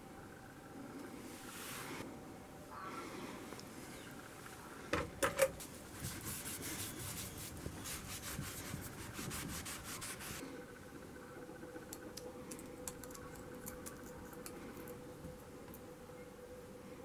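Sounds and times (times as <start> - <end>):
sandpaper rubbing strokes: 5.6 - 10.4.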